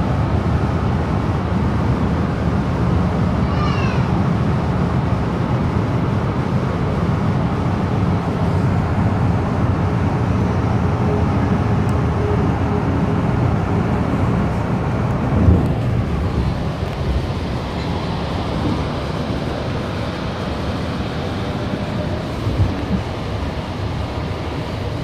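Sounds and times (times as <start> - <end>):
electric train rumbling: 0.0 - 25.0.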